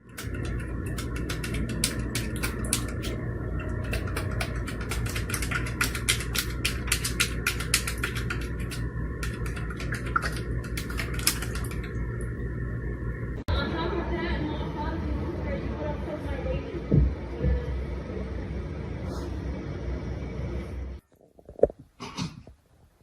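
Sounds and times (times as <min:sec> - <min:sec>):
rapid irregular clicking: 0:00.0 - 0:12.0
steady low hum: 0:00.0 - 0:22.9.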